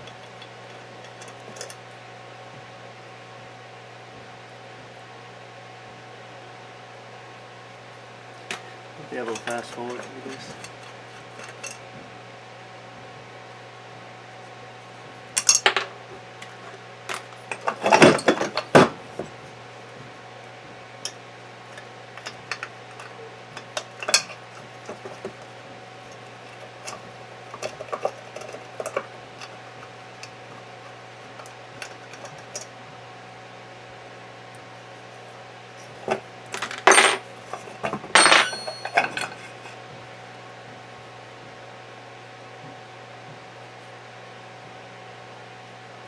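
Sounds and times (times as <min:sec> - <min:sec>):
metal parts clinking: 0:36.5 - 0:39.7.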